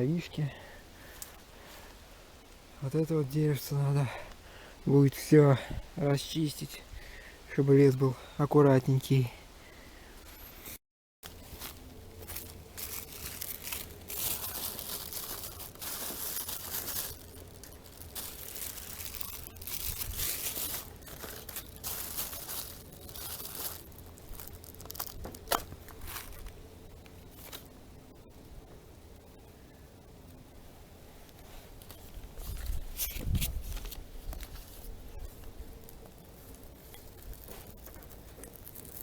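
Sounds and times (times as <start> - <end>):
branches cracking and rustling: 11.2 - 27.8, 31.3 - 39.0.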